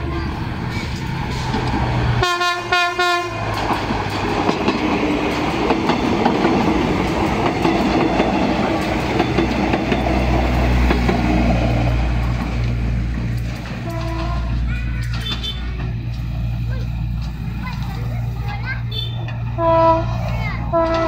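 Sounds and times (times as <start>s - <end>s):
low train engine rumble: 0.0s - 21.0s
diesel train horn: 2.2s - 3.6s, 13.8s - 15.9s, 18.9s - 21.0s
train wheels clattering over rail joints: 3.4s - 21.0s.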